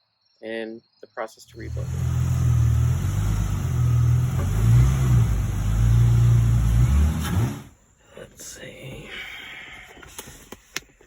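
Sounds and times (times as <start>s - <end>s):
car engine humming: 1.5s - 7.8s.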